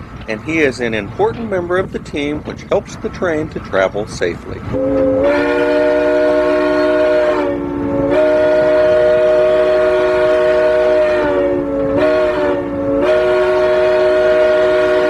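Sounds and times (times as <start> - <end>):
locomotive air horn: 4.7 - 15.0.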